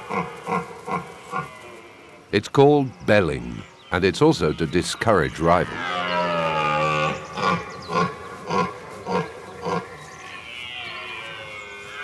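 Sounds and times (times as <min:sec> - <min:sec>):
deer stag roaring: 0:05.4 - 0:12.0.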